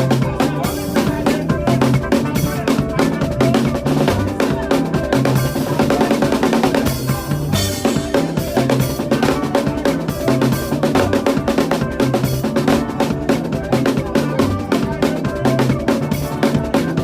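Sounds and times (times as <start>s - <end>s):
bass line: 0.0s - 17.0s.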